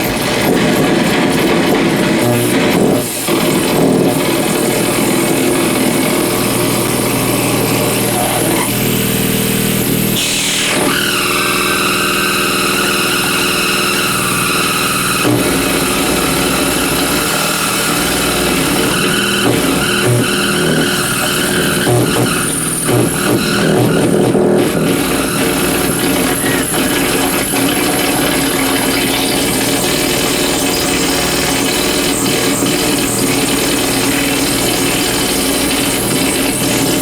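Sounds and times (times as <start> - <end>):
loud dense electrical buzz: 0.0 - 37.0
piercing whistling tones: 10.2 - 37.0.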